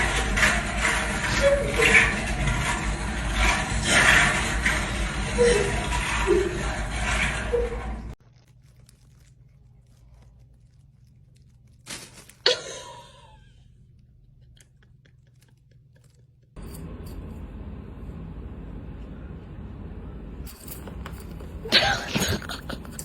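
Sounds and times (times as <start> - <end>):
crunching and chewing: 8.2 - 16.6.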